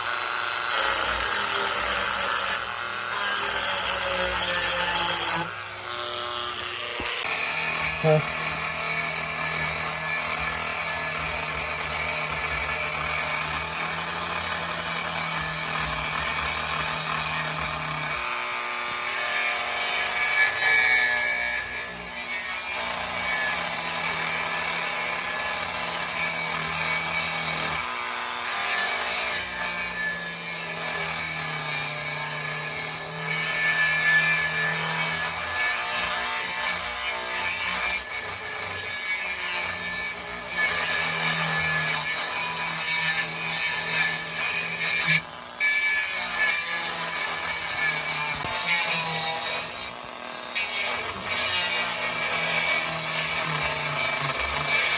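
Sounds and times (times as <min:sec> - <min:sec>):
power sander motor hum: 0:00.0 - 0:09.6
abrasive scraping on wood: 0:00.9 - 0:08.6.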